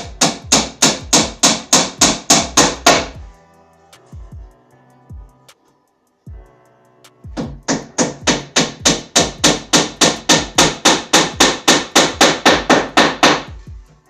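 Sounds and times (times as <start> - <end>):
hammer striking wooden dowels: 0.0 - 3.2, 7.4 - 13.6.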